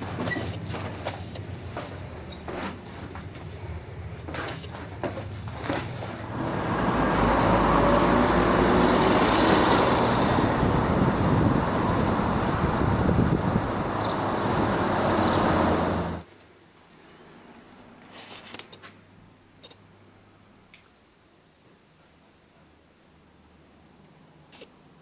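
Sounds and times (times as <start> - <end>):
motorcycle engine hum: 0.0 - 16.2
wind and road noise: 0.0 - 16.3.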